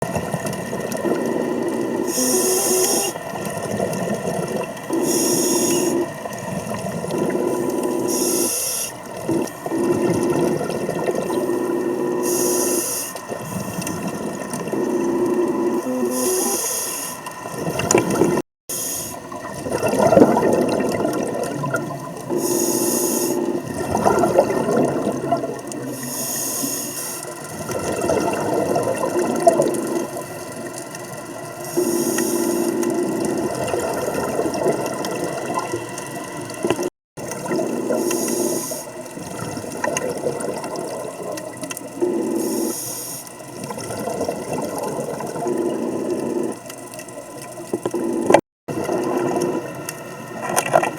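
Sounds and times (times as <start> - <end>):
underwater bubbling: 0.0 - 50.9
regulator breath hiss: 2.0 - 3.2, 5.0 - 6.1, 7.5 - 9.0, 11.5 - 13.9, 15.8 - 17.3, 18.7 - 19.2, 22.3 - 23.6, 25.9 - 27.4, 31.6 - 32.8, 38.0 - 38.9, 42.3 - 43.3.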